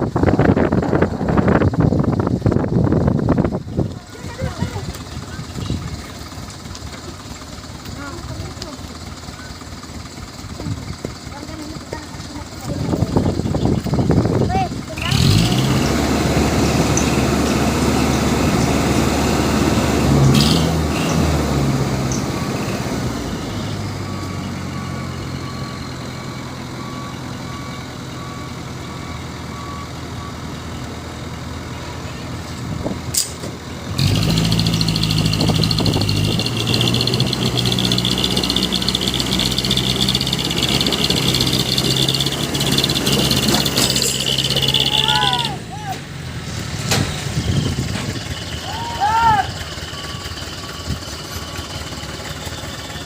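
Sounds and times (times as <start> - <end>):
diesel truck engines running: 0.0 - 53.0
faint beeping: 49.5 - 53.0.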